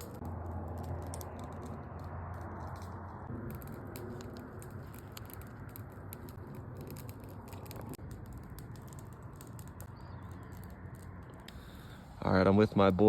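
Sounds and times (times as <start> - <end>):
crackling pops: 0.0 - 12.0
meat sizzling over campfire: 3.2 - 12.2.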